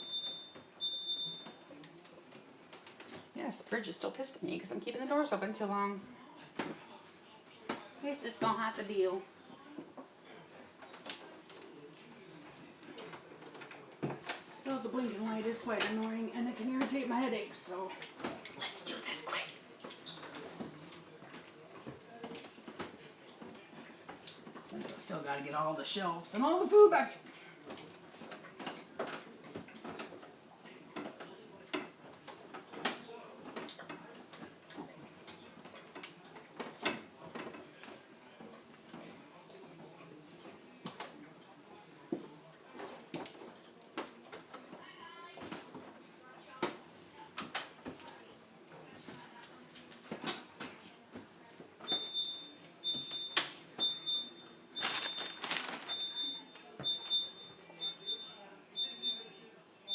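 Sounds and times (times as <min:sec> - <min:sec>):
refrigerator alarm beeping: 0:00.0 - 0:01.6, 0:51.9 - 0:59.3
items clicking and knocking in fridge: 0:54.8 - 0:57.2.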